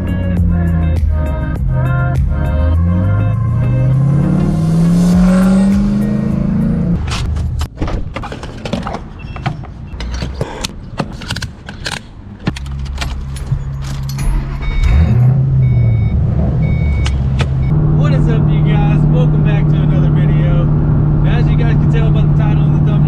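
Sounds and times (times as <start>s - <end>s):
car engine starting and idling: 0.0s - 7.8s, 11.3s - 23.0s
keys jangling: 12.6s - 14.6s
short electronic beeps: 14.3s - 17.8s.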